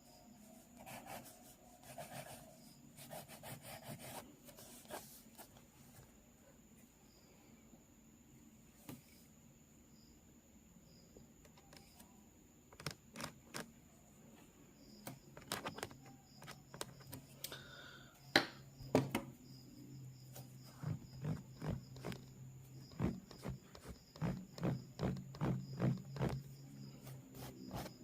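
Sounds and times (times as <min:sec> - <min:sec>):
pencil sketching on paper: 0:00.5 - 0:05.2.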